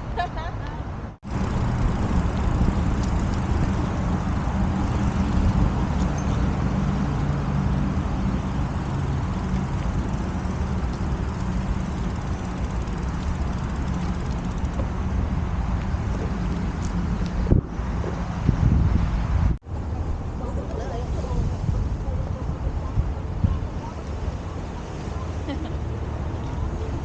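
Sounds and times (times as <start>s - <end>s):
wind noise on microphone: 0.0s - 27.0s
low hum: 1.0s - 17.9s
bicycle rolling: 1.2s - 17.4s.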